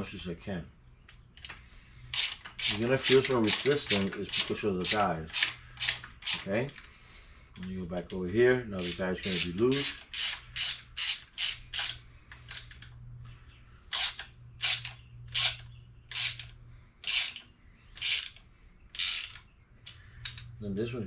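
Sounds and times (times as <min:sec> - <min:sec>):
ratchet wrench clicking: 0:01.4 - 0:06.5, 0:08.8 - 0:12.8, 0:13.9 - 0:18.4, 0:19.0 - 0:19.4.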